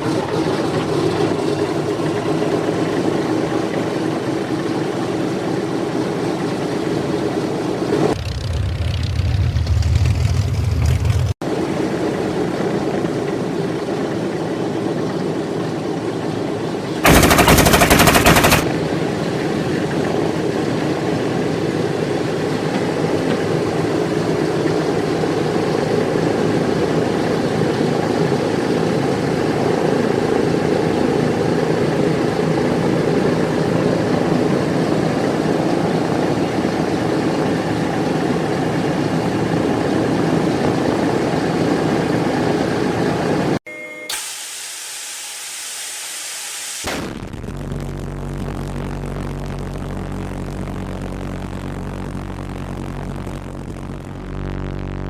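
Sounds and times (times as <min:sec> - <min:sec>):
piston aircraft engine running: 0:00.0 - 0:43.6, 0:46.9 - 0:55.0
machine-gun fire: 0:17.0 - 0:18.8.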